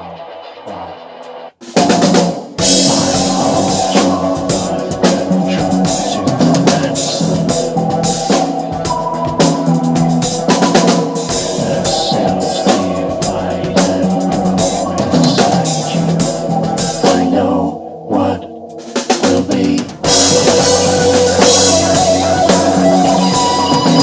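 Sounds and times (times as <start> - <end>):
drum kit playing: 1.5 - 17.4, 18.7 - 24.0
band playing sustained chords: 1.9 - 19.0, 20.0 - 24.0.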